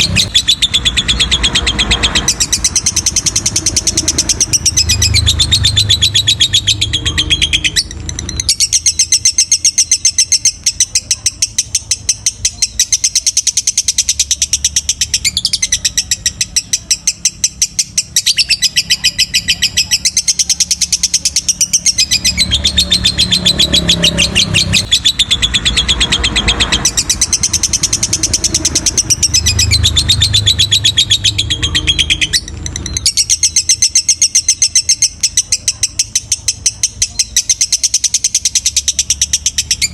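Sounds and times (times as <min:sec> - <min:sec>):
lovebird chattering trill: 0:00.0 - 0:39.9.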